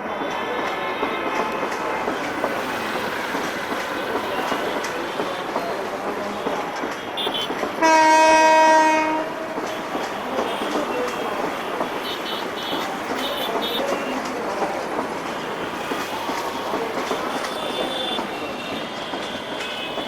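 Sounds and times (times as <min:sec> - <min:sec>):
train rumble and wheel clatter: 0:00.0 - 0:20.0
locomotive horn blast: 0:07.1 - 0:09.6.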